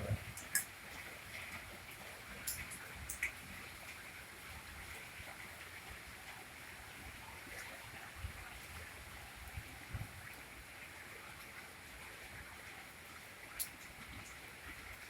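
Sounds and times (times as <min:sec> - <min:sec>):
heavy rain: 0:00.0 - 0:15.0
drips ticking: 0:02.4 - 0:03.4.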